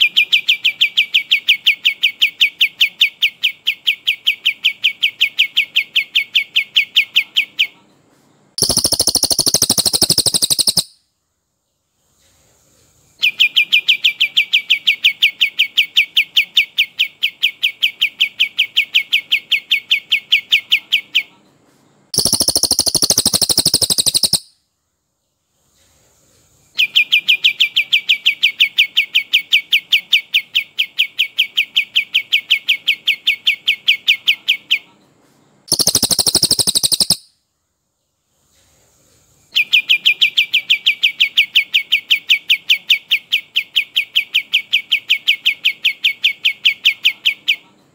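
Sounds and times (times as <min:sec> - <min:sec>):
bird rolling trill: 0:08.6 - 0:10.9, 0:22.2 - 0:24.4, 0:35.7 - 0:37.2
harsh high bird call: 0:08.6 - 0:11.0, 0:22.2 - 0:24.5, 0:35.7 - 0:37.3.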